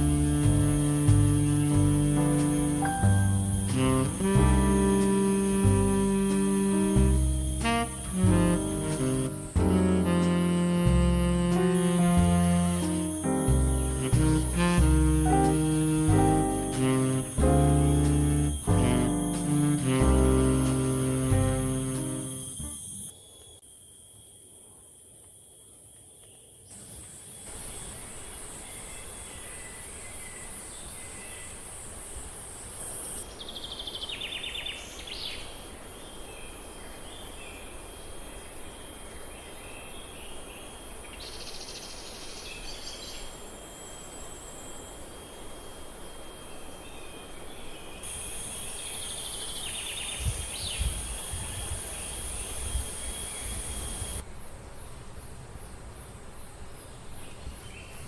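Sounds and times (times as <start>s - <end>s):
low rumbles: 0.0s - 22.8s
insects trilling: 0.0s - 58.0s.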